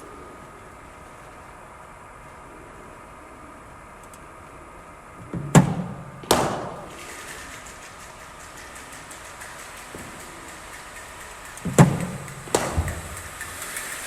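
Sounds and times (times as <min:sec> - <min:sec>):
faint steady hum: 0:00.0 - 0:14.0
bowling machine firing ball: 0:05.2 - 0:14.0
bat cracking against ball: 0:05.3 - 0:07.0, 0:11.7 - 0:13.3.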